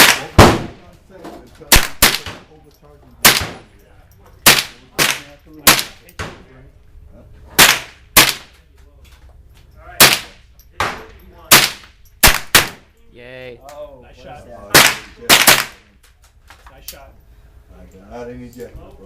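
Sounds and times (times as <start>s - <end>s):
rifle shots: 0.0s - 0.8s, 1.7s - 2.4s, 3.2s - 3.6s, 4.4s - 6.0s, 7.6s - 8.5s, 10.0s - 10.4s, 11.5s - 12.8s, 14.7s - 15.8s.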